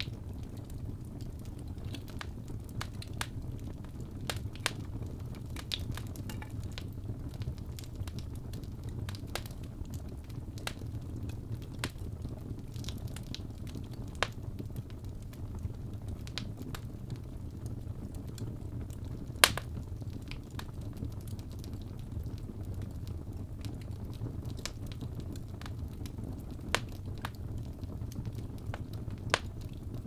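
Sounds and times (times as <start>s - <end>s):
low rumble of flames: 0.0s - 30.0s
wood fire crackling: 0.0s - 30.0s.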